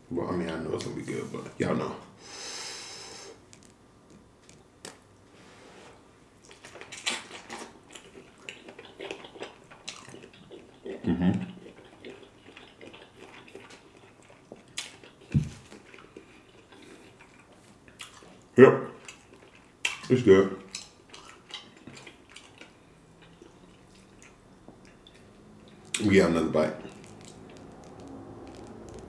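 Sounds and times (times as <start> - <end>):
man chewing: 6.4 - 26.0, 26.8 - 29.0.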